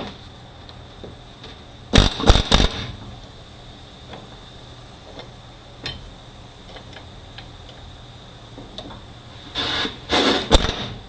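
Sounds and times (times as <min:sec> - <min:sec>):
pneumatic air hammer: 0:02.0 - 0:03.0, 0:09.4 - 0:11.0.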